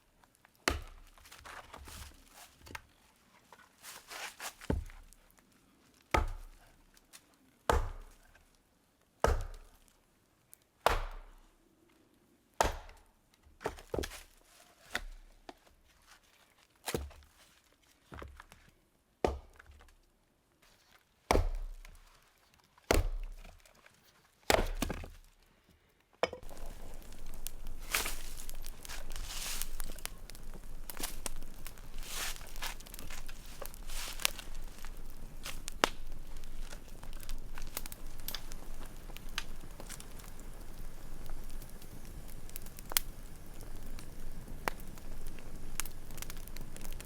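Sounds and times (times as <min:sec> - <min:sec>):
axe chopping wood: 0:00.6 - 0:01.0, 0:06.1 - 0:06.5, 0:07.7 - 0:08.2, 0:09.2 - 0:09.7, 0:10.8 - 0:11.3, 0:12.6 - 0:13.0, 0:19.2 - 0:19.6, 0:21.3 - 0:21.7, 0:22.9 - 0:23.3, 0:24.5 - 0:25.1
steady rustling: 0:26.4 - 0:40.7.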